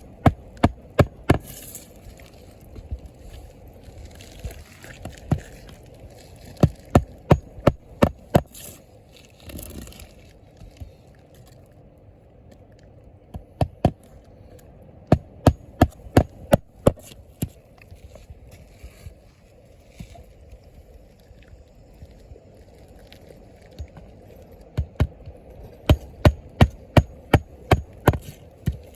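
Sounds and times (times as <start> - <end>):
hammer striking roofing nails: 0.0 - 1.6, 6.7 - 8.5, 15.1 - 17.0, 25.9 - 28.9.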